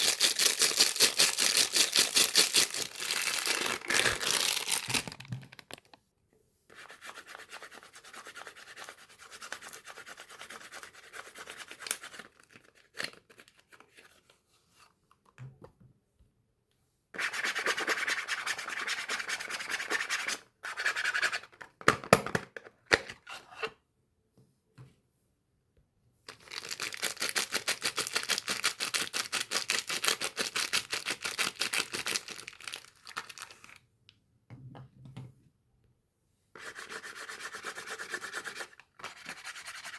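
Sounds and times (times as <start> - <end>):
rubbing and scratching on wrapping: 0.0 - 5.9, 26.3 - 33.8, 36.6 - 39.9.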